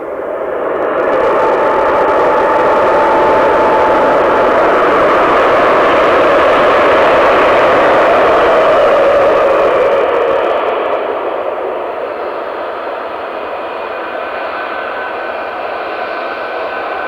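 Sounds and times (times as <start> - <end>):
jet engines whining: 0.0 - 17.0.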